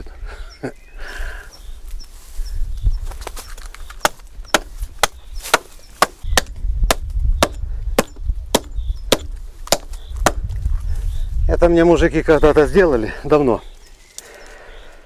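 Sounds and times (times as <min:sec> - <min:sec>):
axe chopping wood: 0:04.0 - 0:10.5.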